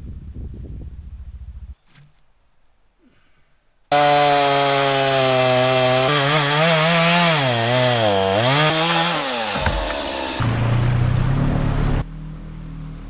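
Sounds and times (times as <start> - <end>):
chainsaw running at high revs: 3.9 - 10.5.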